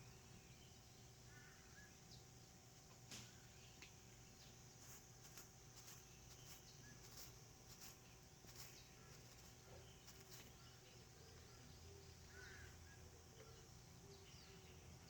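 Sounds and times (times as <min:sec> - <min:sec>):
faint bird chirps: 0:00.0 - 0:15.0
steady low hum: 0:00.0 - 0:15.0.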